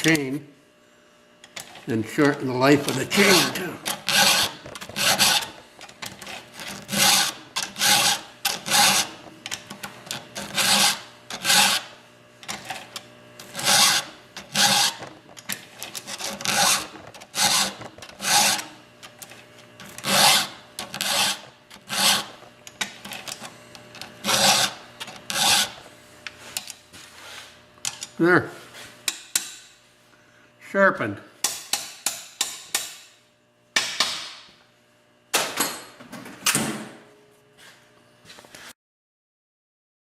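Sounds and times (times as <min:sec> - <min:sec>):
file rasping on chain teeth: 0:02.9 - 0:05.6, 0:06.2 - 0:11.9, 0:13.5 - 0:18.7, 0:19.9 - 0:25.8.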